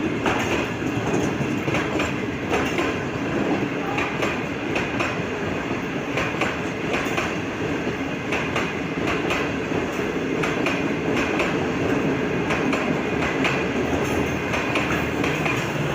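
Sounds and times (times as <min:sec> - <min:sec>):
train wheels rumbling on rail: 0:00.0 - 0:15.9
wheels clicking over rail joints: 0:00.2 - 0:05.2, 0:08.3 - 0:15.9.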